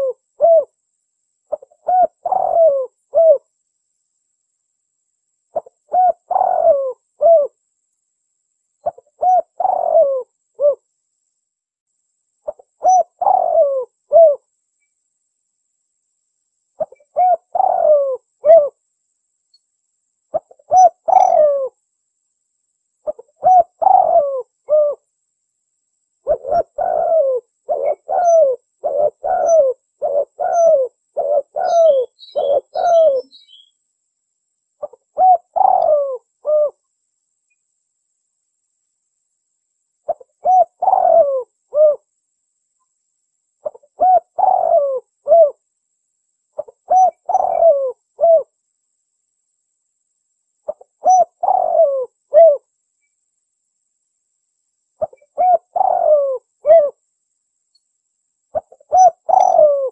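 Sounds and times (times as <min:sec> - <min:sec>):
dove cooing: 0:00.0 - 0:00.8, 0:01.5 - 0:03.5, 0:05.5 - 0:07.6, 0:08.8 - 0:10.8, 0:12.4 - 0:14.5, 0:16.8 - 0:18.8, 0:20.3 - 0:21.8, 0:23.0 - 0:25.0, 0:26.2 - 0:33.7, 0:34.8 - 0:36.8, 0:40.1 - 0:42.1, 0:43.6 - 0:45.6, 0:46.6 - 0:48.5, 0:50.7 - 0:52.7, 0:55.0 - 0:57.0, 0:58.5 - 0:59.9
faint high chirps: 0:26.2 - 0:33.9.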